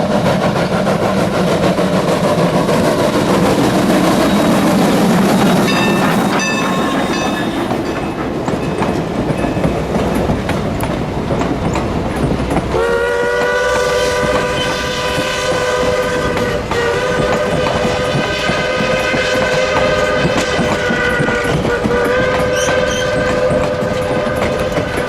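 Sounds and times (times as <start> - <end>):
train rumble and rail clatter: 0.0 - 25.0
steam whistle blowing: 12.7 - 25.0.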